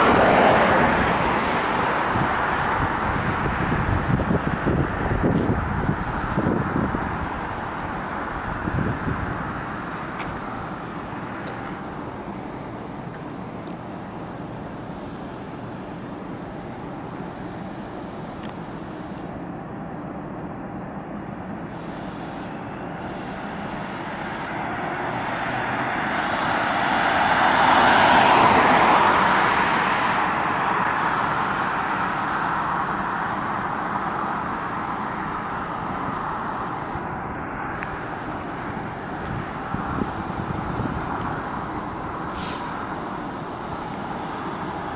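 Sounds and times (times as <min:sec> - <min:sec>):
car passing close by: 0:00.0 - 0:04.8, 0:23.2 - 0:32.8
road traffic noise: 0:00.0 - 0:44.9.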